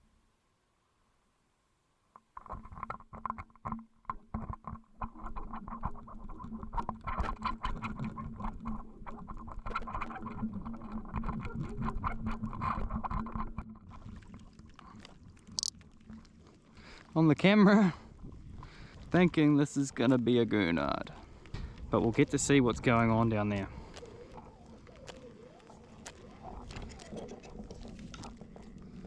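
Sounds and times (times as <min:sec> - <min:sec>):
underwater knocks and rattles: 0:02.1 - 0:17.1, 0:20.8 - 0:29.0.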